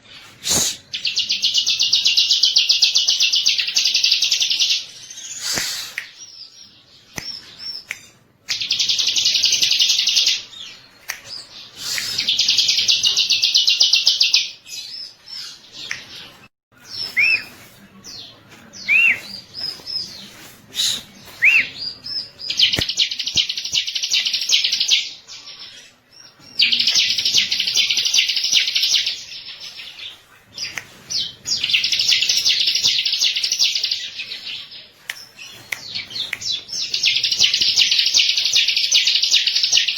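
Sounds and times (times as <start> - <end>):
bird chirps: 16.8 - 25.7.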